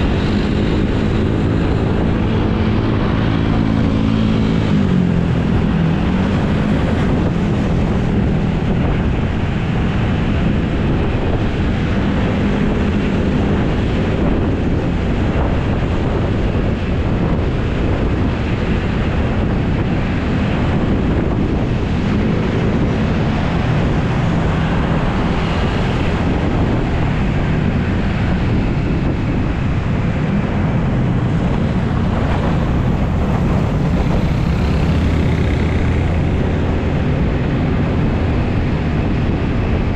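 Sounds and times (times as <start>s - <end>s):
wind buffeting microphone: 0.0s - 39.9s
scooter engine running: 31.4s - 36.8s.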